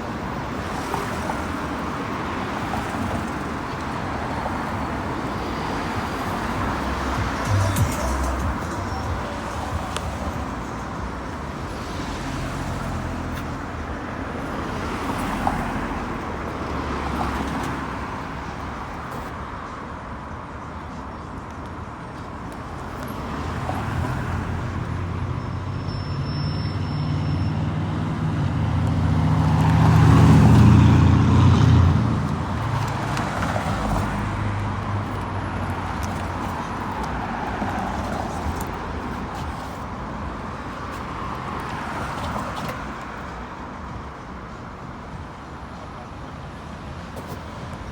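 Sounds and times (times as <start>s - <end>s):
road traffic passing: 0.0s - 47.9s
vehicle engine hum passing close: 26.6s - 43.3s.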